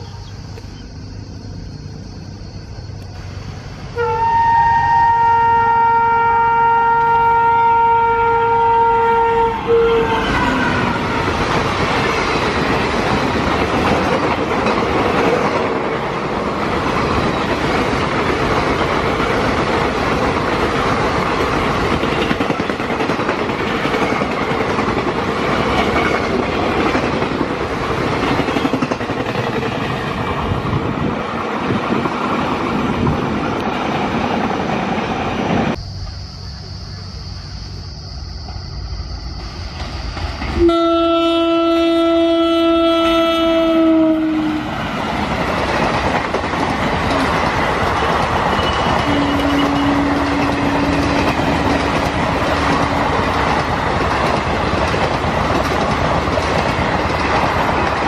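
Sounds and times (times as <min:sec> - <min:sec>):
passenger train passing: 0:00.0 - 0:58.0
locomotive horn blast: 0:04.0 - 0:11.3, 0:40.6 - 0:44.7, 0:49.0 - 0:51.9.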